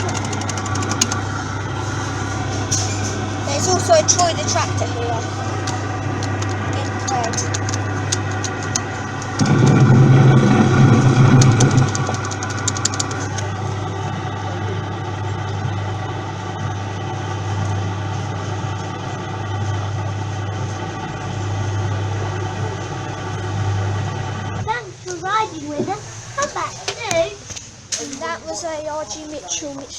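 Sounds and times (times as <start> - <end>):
clicks: 0.0 - 13.9
kiddie ride humming: 0.0 - 29.9.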